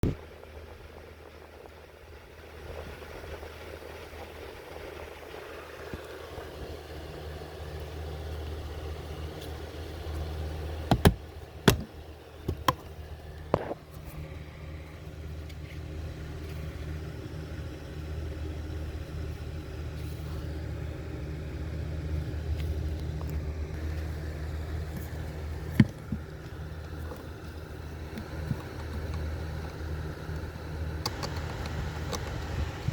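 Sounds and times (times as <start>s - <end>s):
car engine idling: 0.0s - 32.9s
sharp clicks and knocks: 10.9s - 13.8s, 31.0s - 32.6s.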